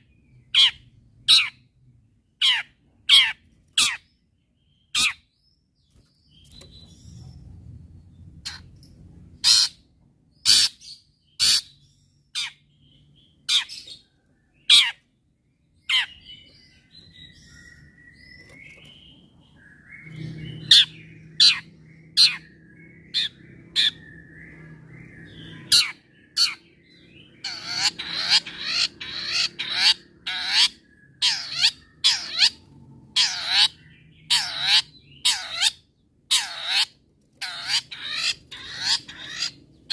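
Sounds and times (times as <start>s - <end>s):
faint low hum: 0.0s - 10.4s
bird singing sharp notes and trills: 0.0s - 39.9s.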